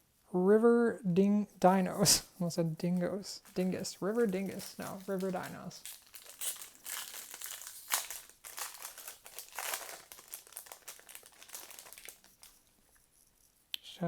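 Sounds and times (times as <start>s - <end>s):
foil wrapper crinkling: 3.4s - 12.8s.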